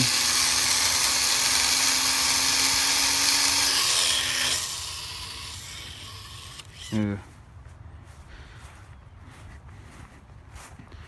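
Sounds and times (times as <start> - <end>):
small propeller motor whining: 0.0 - 7.2.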